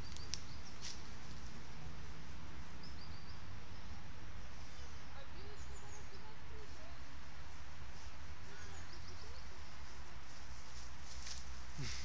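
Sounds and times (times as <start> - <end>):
small bird chirping: 0.0 - 1.0, 2.7 - 7.1, 8.4 - 10.0
low outdoor rumble: 0.0 - 12.0.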